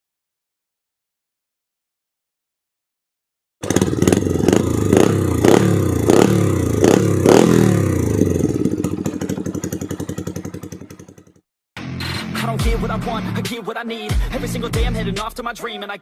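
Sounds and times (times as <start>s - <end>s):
motorcycle engine idling: 3.6s - 11.4s
motorcycle engine throttle blips: 3.6s - 11.4s.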